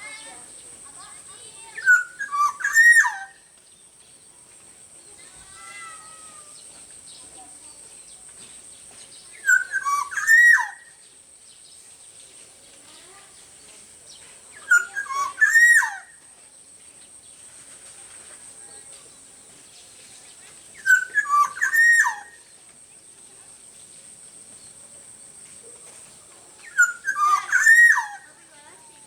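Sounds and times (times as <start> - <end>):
bird singing fluty whistles: 1.8 - 3.4, 9.4 - 10.9, 14.6 - 16.1, 20.8 - 22.4, 26.6 - 28.3.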